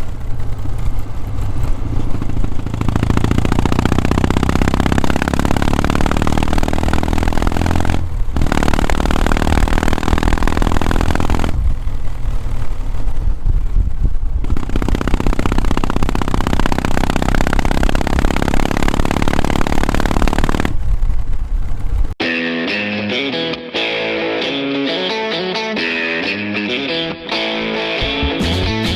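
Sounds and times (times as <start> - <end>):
motorcycle engine under throttle: 0.0 - 22.2.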